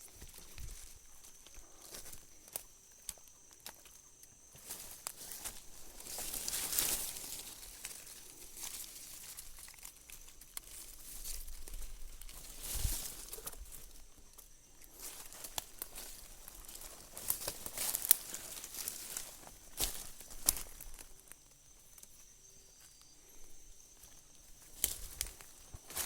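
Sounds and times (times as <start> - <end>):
vegetation rustling and snapping: 0.2 - 21.4, 24.3 - 26.0
footsteps crunching on dry leaves: 4.5 - 14.1, 14.8 - 21.3, 24.6 - 26.0.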